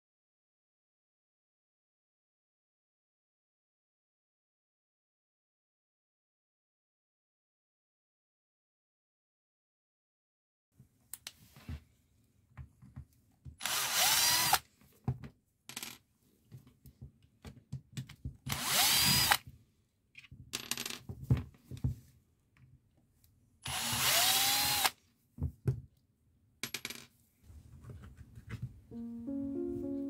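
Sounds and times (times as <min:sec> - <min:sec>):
rotary hammer drill motor whining: 0:13.6 - 0:14.6, 0:18.5 - 0:19.4, 0:23.6 - 0:25.0.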